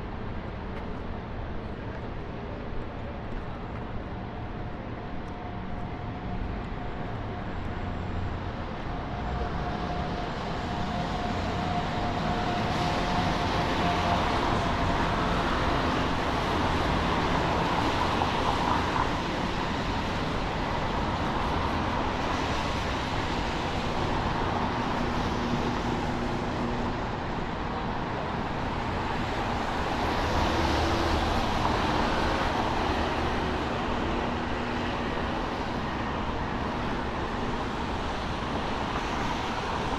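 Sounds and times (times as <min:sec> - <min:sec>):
cars passing on wet pavement: 0:09.6 - 0:39.9.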